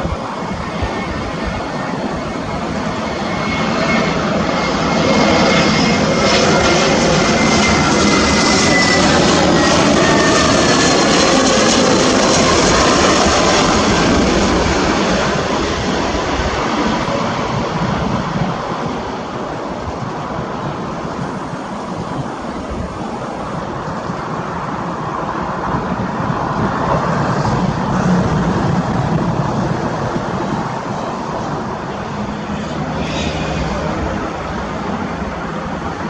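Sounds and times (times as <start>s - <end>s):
jet airliner passing close: 0.0s - 36.0s.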